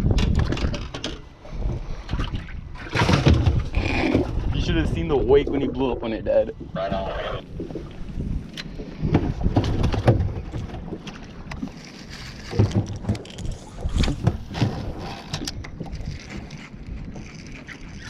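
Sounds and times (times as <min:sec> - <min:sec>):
wind buffeting microphone: 0:00.0 - 0:11.6, 0:12.4 - 0:18.0
water moving against boat: 0:00.0 - 0:18.0.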